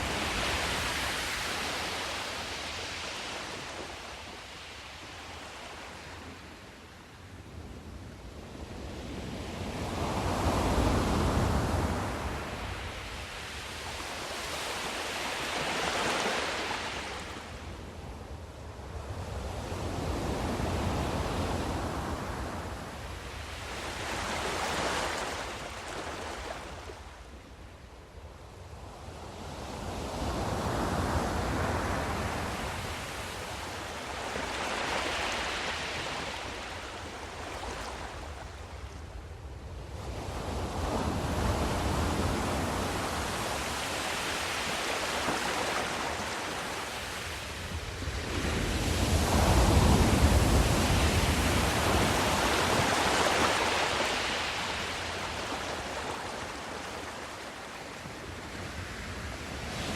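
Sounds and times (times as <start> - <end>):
sea waves washing: 42.1 - 58.0.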